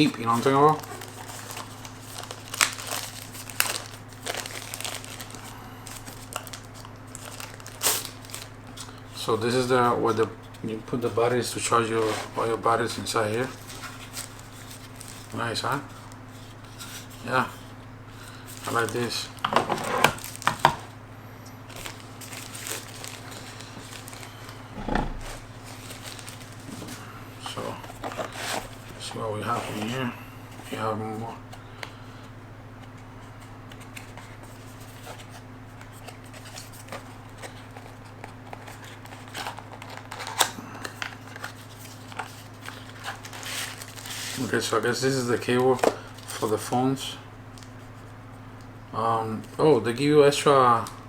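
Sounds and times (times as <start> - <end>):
plastic packaging crinkling: 0.0 - 9.7, 11.3 - 17.3, 18.4 - 21.0, 21.6 - 30.8, 33.7 - 46.7
steady low hum: 0.0 - 51.0.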